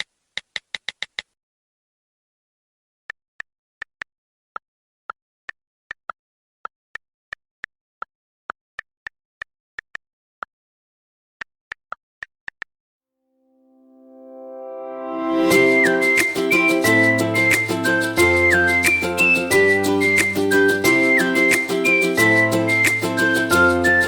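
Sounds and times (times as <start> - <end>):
music: 13.7 - 24.0.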